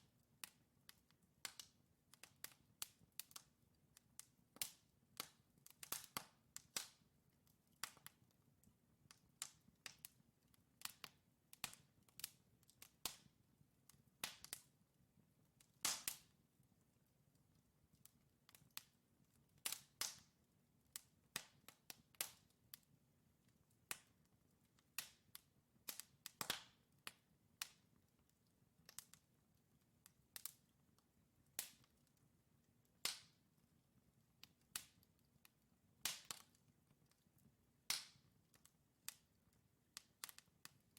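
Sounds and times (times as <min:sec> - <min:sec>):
wood fire crackling and popping: 0:00.1 - 0:40.9.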